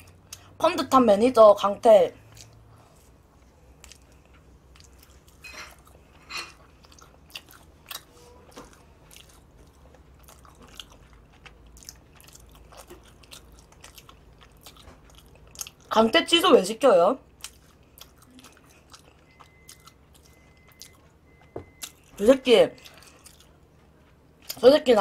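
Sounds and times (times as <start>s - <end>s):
person chewing pastry: 2.2s - 16.0s, 17.2s - 24.6s.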